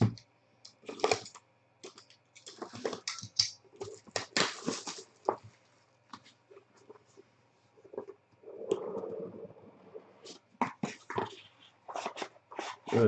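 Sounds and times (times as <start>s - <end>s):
packaging crinkling and tearing: 0.8s - 5.4s.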